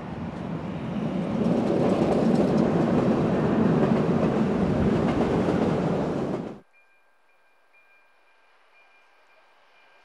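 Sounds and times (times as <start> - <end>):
train wheels rumbling on rails: 0.0 - 6.6.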